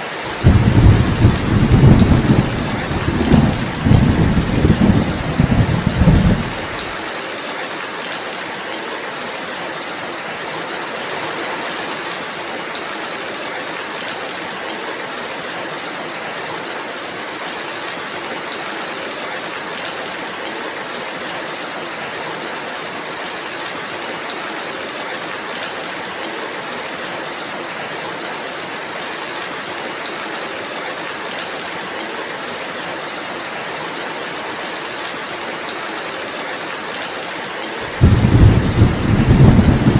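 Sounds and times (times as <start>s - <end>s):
steady rainfall: 0.0s - 39.9s
thunder rumble: 0.3s - 6.9s, 37.9s - 39.9s.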